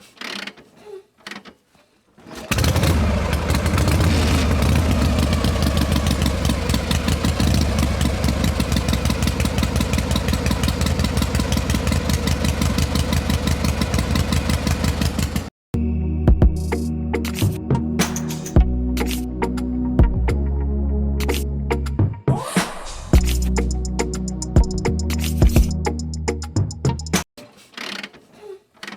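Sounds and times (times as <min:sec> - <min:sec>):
small engine running: 0:02.4 - 0:15.5.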